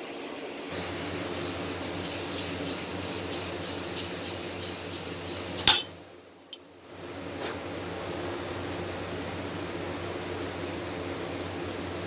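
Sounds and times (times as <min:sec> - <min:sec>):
tubing scraping on sandpaper: 0:00.7 - 0:05.8.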